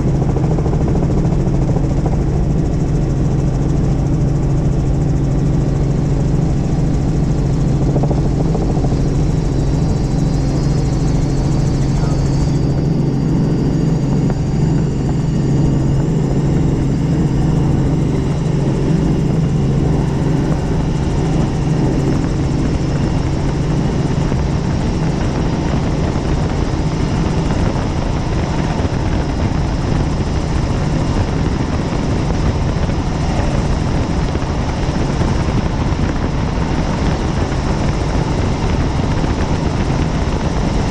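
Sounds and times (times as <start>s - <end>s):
helicopter engine and rotor hum: 0.0s - 40.9s
faint high whine: 4.2s - 25.9s.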